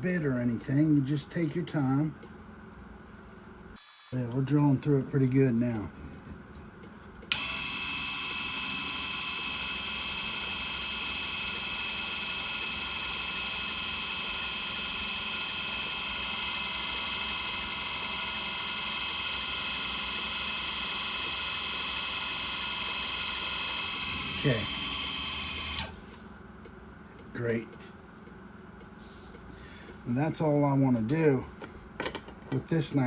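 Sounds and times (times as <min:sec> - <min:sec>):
drill press whining: 0:07.2 - 0:26.2.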